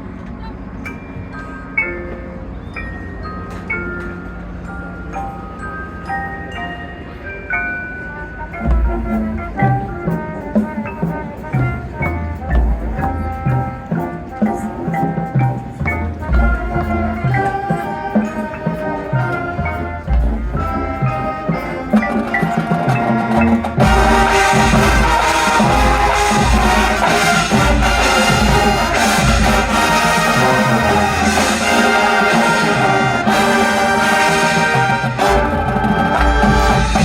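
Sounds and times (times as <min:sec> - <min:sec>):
marching band playing: 0:08.0 - 0:37.0.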